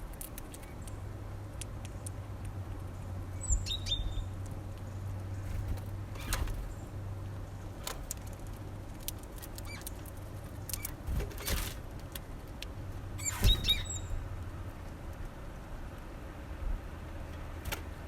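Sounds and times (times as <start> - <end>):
short high bird chirps: 3.4 - 4.3, 13.2 - 14.2.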